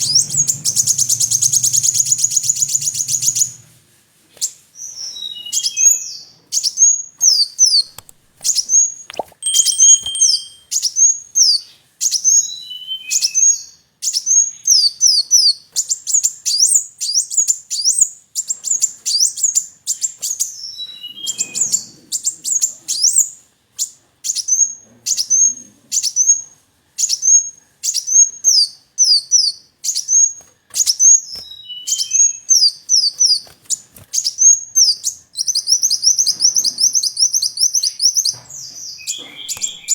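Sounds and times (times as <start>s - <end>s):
sunbird singing: 0.0s - 3.7s, 5.2s - 11.1s, 28.0s - 39.9s.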